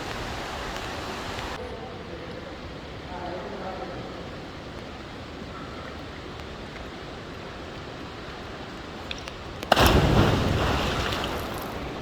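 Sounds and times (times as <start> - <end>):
water rushing: 0.0 - 1.6, 9.7 - 12.0.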